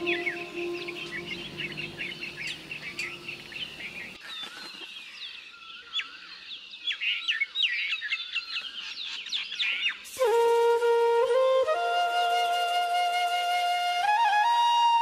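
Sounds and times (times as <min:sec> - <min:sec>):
low flute note: 0:00.0 - 0:03.4, 0:10.1 - 0:15.0
small birds chirping: 0:00.0 - 0:10.1.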